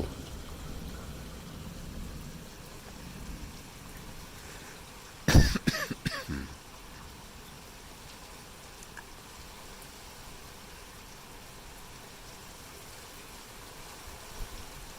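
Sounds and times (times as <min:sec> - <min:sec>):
heavy rain falling: 0:00.0 - 0:14.9
person coughing: 0:05.3 - 0:06.6.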